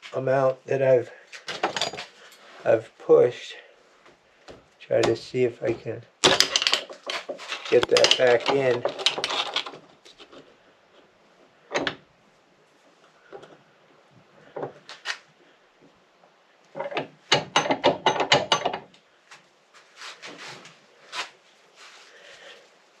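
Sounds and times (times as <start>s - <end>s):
rope and tube rubbing: 19.8s - 22.6s.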